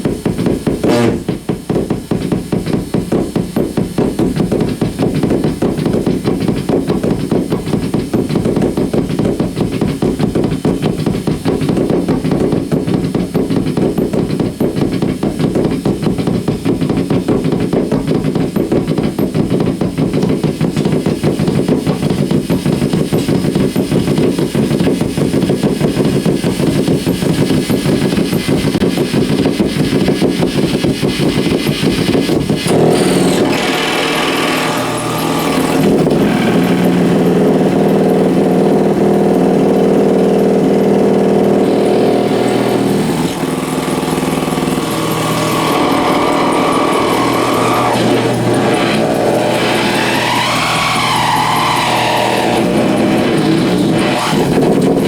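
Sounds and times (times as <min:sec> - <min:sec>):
pulsing electrical buzz: 0:00.6 - 0:01.4, 0:20.5 - 0:55.0
shrill electrical drone: 0:31.9 - 0:55.0.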